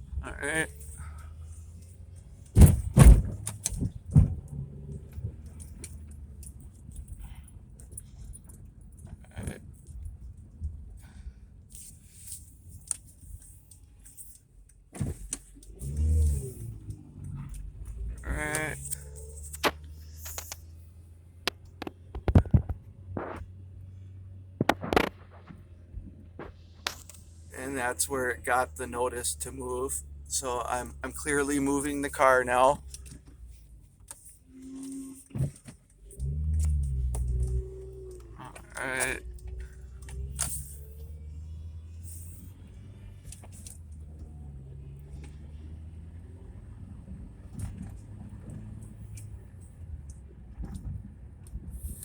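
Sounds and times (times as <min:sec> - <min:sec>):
knocks and rattles inside car: 0:00.0 - 0:11.3, 0:14.8 - 0:20.8, 0:21.4 - 0:23.6, 0:24.5 - 0:28.6, 0:46.7 - 0:51.8
car drone: 0:00.0 - 0:52.0.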